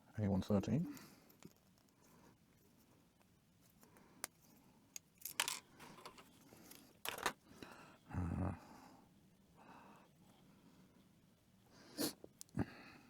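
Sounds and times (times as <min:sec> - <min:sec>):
plastic parts clicking and rattling: 0:05.0 - 0:07.4.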